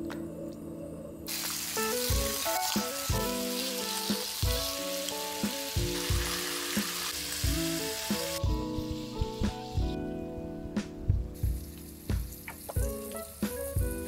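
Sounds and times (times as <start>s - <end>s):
background music with plucked notes: 0.0s - 14.0s
chicken sizzling on a griddle: 1.3s - 10.0s, 11.4s - 14.0s.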